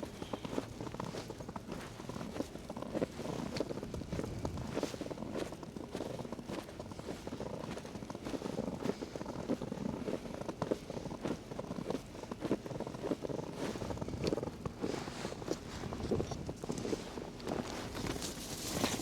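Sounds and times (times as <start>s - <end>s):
footsteps in snow: 12.4s - 19.0s.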